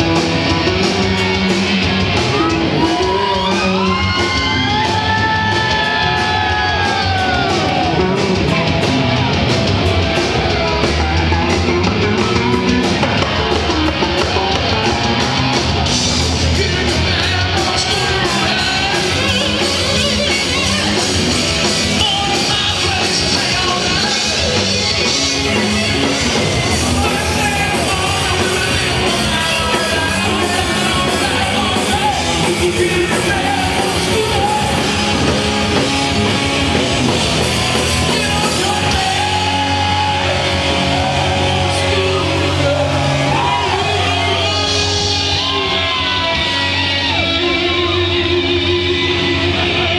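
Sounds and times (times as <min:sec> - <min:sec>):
live rock band playing: 0:00.0 - 0:49.9
lead singer singing: 0:00.7 - 0:08.1, 0:16.1 - 0:49.9.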